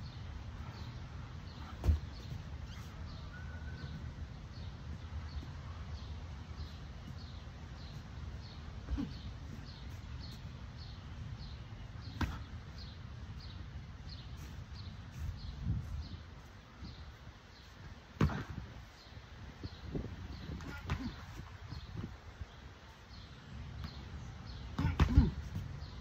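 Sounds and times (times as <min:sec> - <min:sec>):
sharp thuds: 0:01.6 - 0:02.4, 0:18.2 - 0:18.6.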